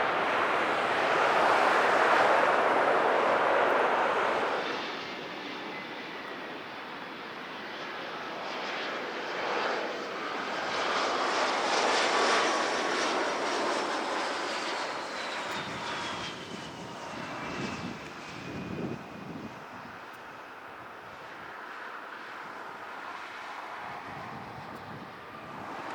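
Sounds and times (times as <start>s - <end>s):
high engine whine falling in pitch: 0.0s - 5.0s
jet airliner passing by: 0.0s - 25.9s.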